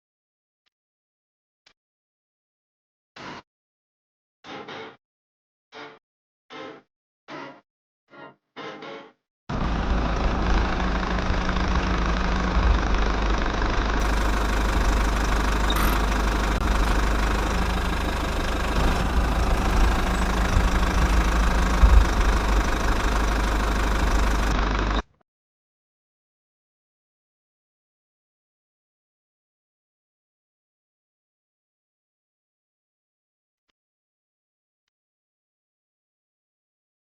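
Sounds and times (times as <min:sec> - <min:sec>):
small diesel engine rumbling: 0:09.5 - 0:25.0.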